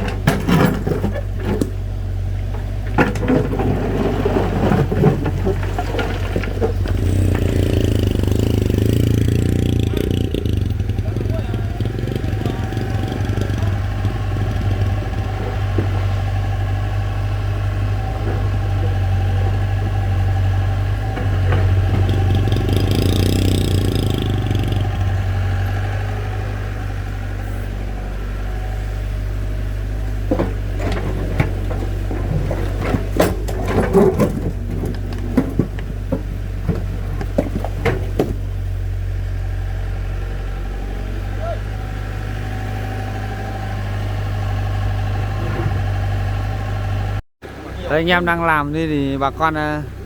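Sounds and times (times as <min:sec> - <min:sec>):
engine idling: 0:00.0 - 0:50.0
sharp irregular knocks and clatters: 0:21.0 - 0:25.1, 0:30.2 - 0:38.5.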